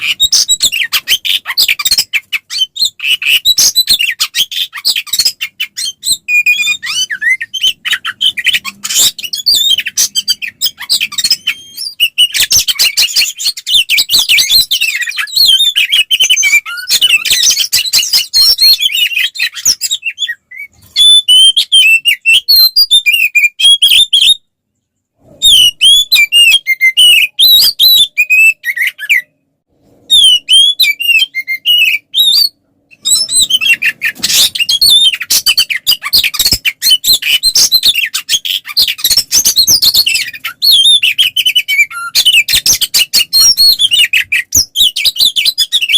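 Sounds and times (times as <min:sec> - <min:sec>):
bird singing chattering song: 0:00.0 - 0:24.4, 0:30.1 - 0:45.9.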